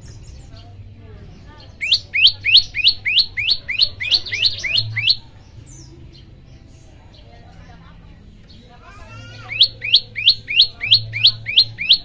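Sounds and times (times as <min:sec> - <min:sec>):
faint bird chirps: 0:01.4 - 0:06.8, 0:08.4 - 0:12.0
songbird singing rising notes: 0:01.7 - 0:06.6, 0:09.4 - 0:12.0.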